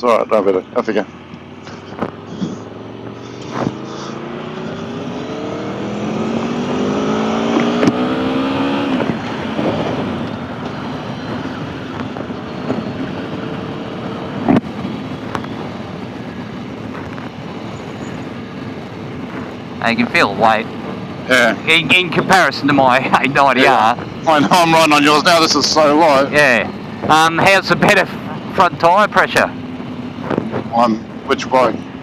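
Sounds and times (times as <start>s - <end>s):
motorcycle engine accelerating: 1.1s - 32.0s
wind noise: 4.9s - 19.6s, 30.1s - 30.8s.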